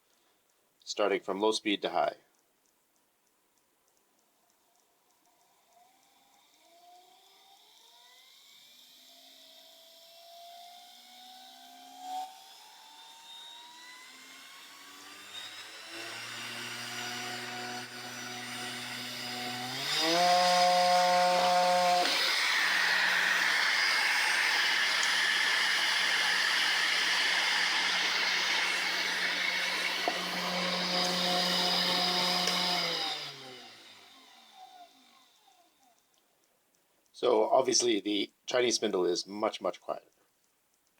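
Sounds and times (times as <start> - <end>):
spindle motor whine: 5.8 - 35.9.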